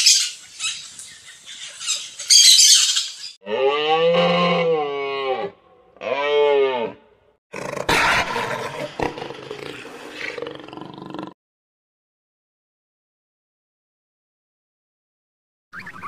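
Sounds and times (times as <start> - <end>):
cow mooing: 3.4 - 7.1.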